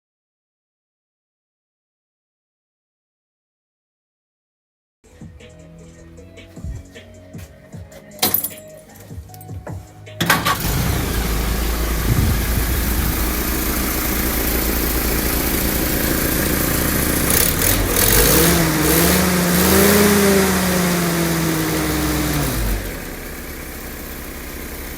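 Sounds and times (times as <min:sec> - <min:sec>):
jeep engine running and revving: 0:10.2 - 0:24.9.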